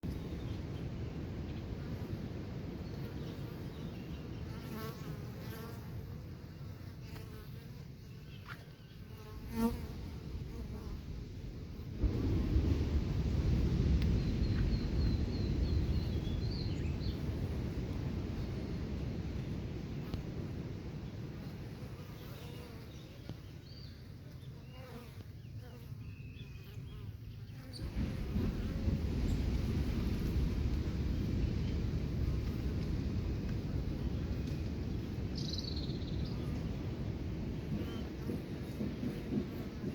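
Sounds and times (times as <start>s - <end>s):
buzzing hum of wings: 1.6s - 12.9s, 14.1s - 39.9s
low rumble: 10.4s - 19.8s.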